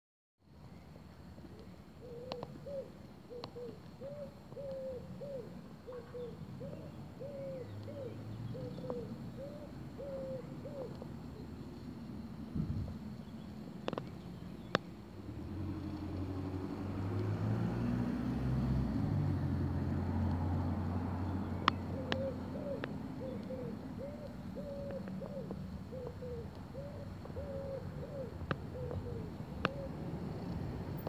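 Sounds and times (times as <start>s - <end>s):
faint clicks: 1.4s - 2.5s, 13.2s - 14.9s, 21.6s - 23.6s, 28.4s - 29.8s
bird low hooting: 1.5s - 11.6s, 20.0s - 30.2s.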